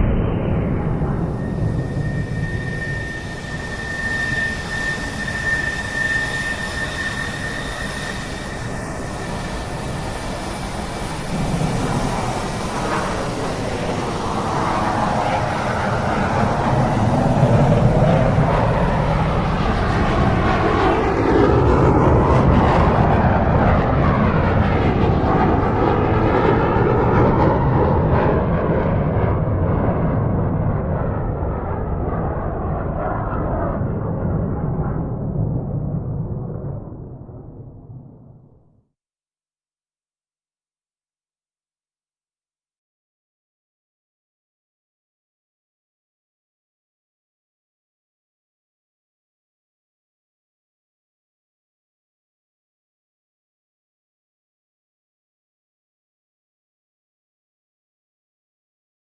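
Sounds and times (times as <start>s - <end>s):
aircraft engine passing: 0.0s - 37.5s.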